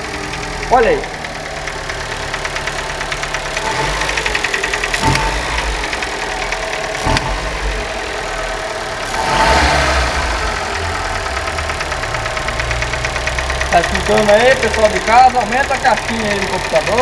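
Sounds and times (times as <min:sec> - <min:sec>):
car engine idling: 0:00.0 - 0:17.0
fast knocking inside engine: 0:00.0 - 0:17.0.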